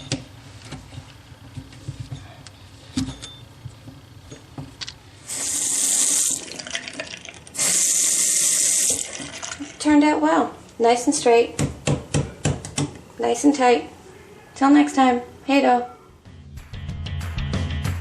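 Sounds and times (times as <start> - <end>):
water running into sink: 5.3 - 9.8.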